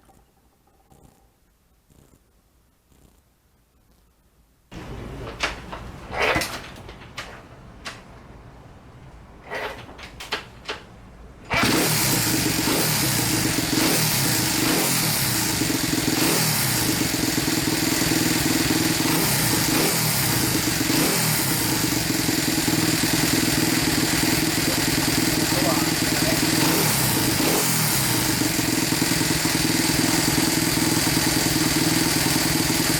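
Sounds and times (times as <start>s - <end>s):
small engine knocking: 11.5s - 32.9s
small engine running: 11.5s - 32.9s.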